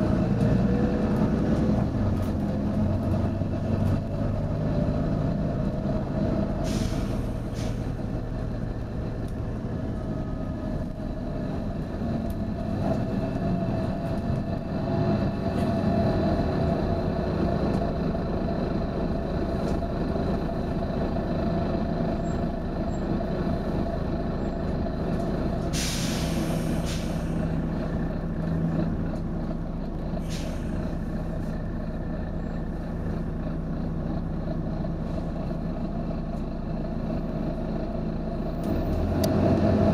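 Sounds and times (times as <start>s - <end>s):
bus engine running: 0.0s - 39.9s
compressed air hisses: 6.6s - 7.8s, 25.7s - 27.4s.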